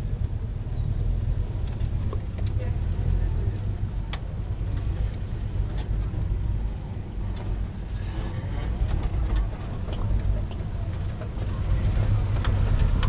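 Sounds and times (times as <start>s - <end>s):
vehicle engine low rumble: 0.0s - 13.0s
faint clicks and knocks: 7.3s - 13.0s.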